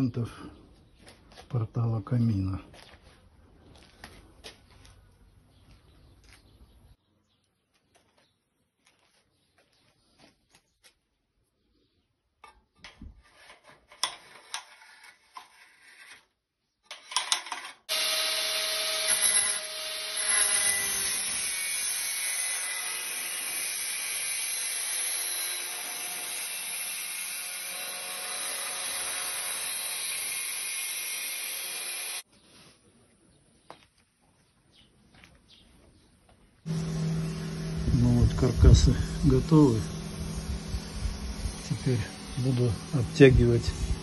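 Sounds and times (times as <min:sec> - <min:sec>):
power tool whining: 0:17.9 - 0:32.2, 0:36.7 - 0:44.0.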